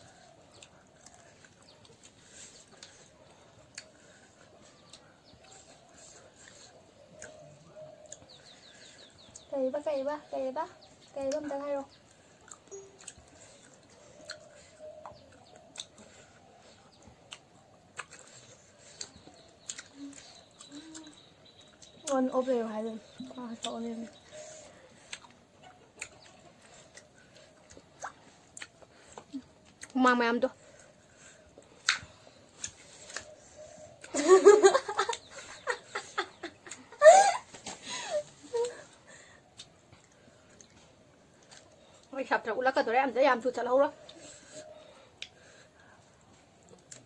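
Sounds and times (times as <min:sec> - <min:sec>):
mouth clicks and smacks chewing: 0:00.0 - 0:09.5, 0:10.8 - 0:37.0, 0:38.5 - 0:42.2, 0:44.0 - 0:47.0
person giggling: 0:34.1 - 0:38.8.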